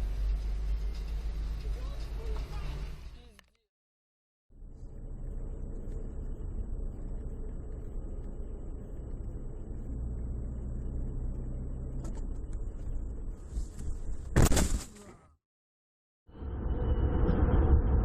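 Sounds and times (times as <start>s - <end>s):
car driving rumble: 0.0s - 3.4s, 4.6s - 14.4s.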